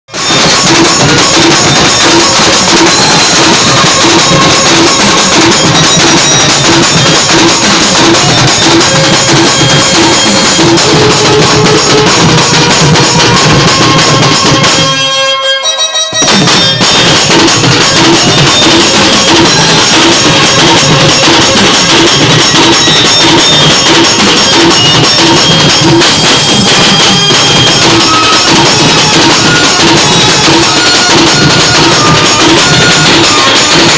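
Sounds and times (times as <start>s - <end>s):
band party music with drums: 0.1s - 15.1s, 15.7s - 33.9s.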